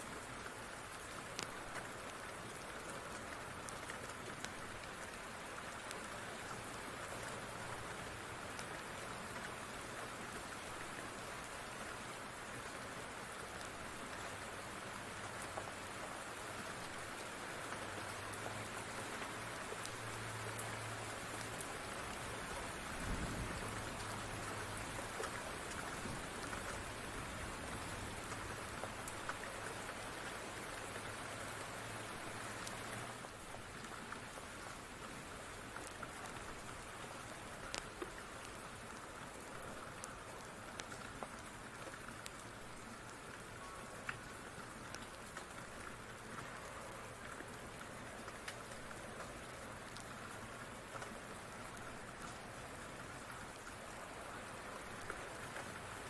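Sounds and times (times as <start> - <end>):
steady rain: 0.0 - 56.0
faint ticks: 1.2 - 9.6, 32.6 - 55.8.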